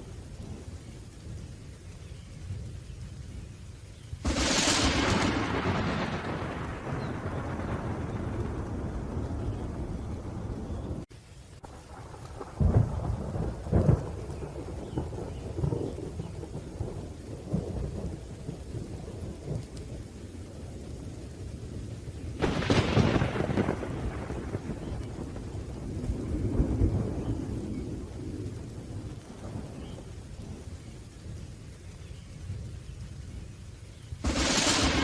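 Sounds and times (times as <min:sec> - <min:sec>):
steady rain: 0:00.0 - 0:35.0
sharp thunderclap: 0:04.2 - 0:11.0, 0:11.7 - 0:19.7, 0:22.4 - 0:30.1, 0:34.2 - 0:35.0
low rolling thunder: 0:04.2 - 0:35.0.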